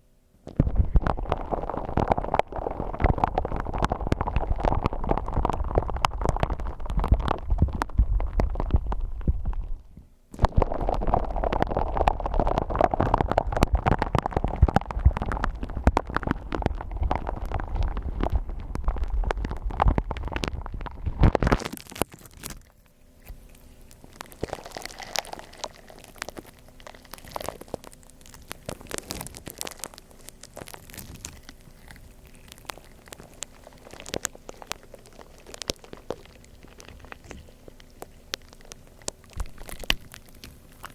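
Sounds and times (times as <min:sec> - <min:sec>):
low rumble: 0:00.5 - 0:21.5
slime crunching by hand: 0:00.5 - 0:40.9.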